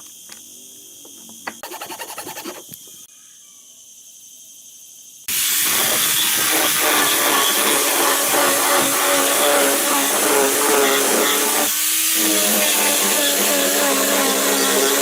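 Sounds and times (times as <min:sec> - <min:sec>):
scraping strokes on wood: 0:01.5 - 0:02.8
electric power tool running: 0:05.3 - 0:15.0.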